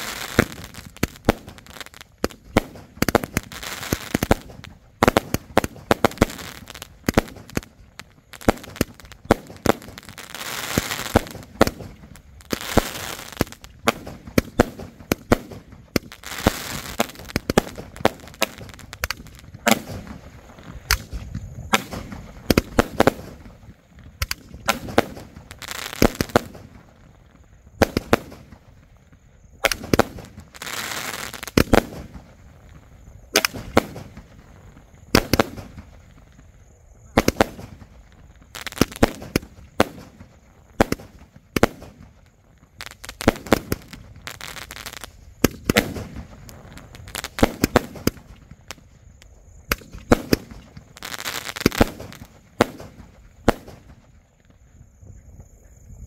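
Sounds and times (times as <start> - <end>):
firework shells bursting: 0.0 - 26.8, 33.3 - 34.3
firework crackling: 0.0 - 54.4.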